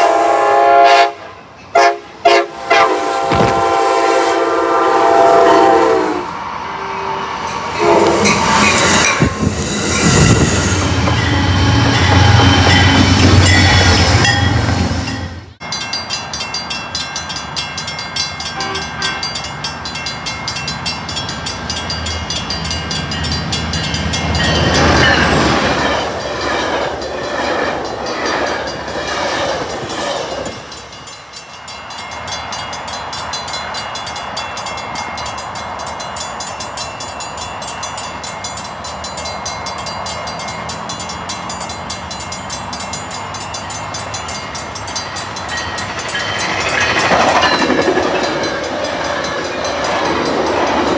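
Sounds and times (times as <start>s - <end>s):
train horn: 0.0s - 8.8s, 18.6s - 19.2s
train wheels clattering on rails: 3.2s - 4.1s, 7.5s - 50.9s.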